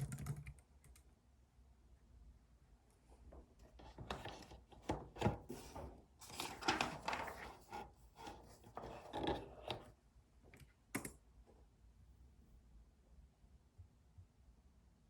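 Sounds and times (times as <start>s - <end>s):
paper rustling: 3.8s - 9.9s.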